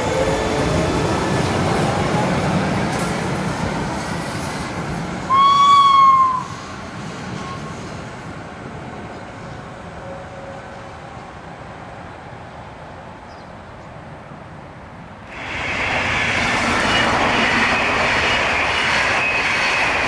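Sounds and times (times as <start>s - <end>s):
electric train running past: 0.0s - 13.1s, 15.2s - 20.0s
train horn blast: 5.3s - 6.7s.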